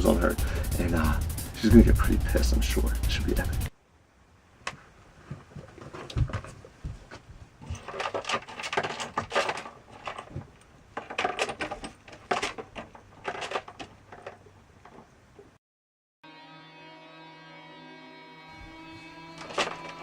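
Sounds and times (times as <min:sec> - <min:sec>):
small objects clattering: 0:07.6 - 0:15.2, 0:19.4 - 0:20.0.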